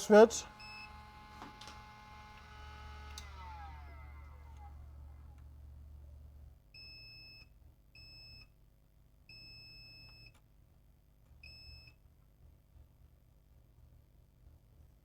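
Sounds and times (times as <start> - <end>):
multimeter continuity beeps: 0.6 - 1.0.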